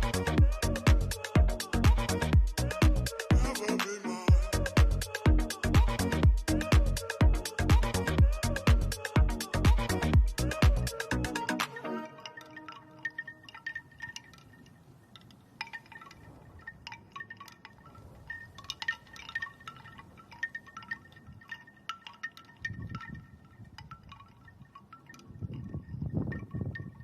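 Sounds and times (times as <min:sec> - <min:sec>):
low rumble: 0:04.3 - 0:10.9
light chime tones tinkling: 0:09.8 - 0:27.0.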